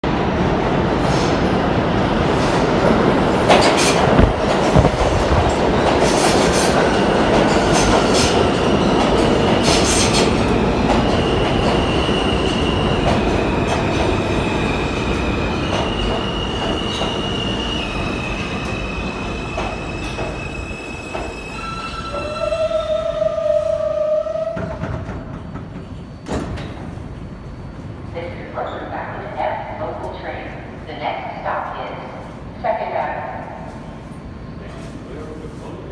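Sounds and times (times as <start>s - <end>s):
train wheels rumbling and clicking: 0.7s - 21.6s
high brake squeal: 16.0s - 24.6s.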